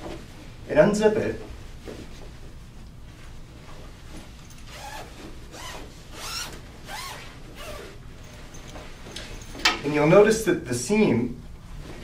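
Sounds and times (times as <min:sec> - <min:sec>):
cloth rustling: 0:00.0 - 0:10.1
zipper being pulled open: 0:04.6 - 0:08.3.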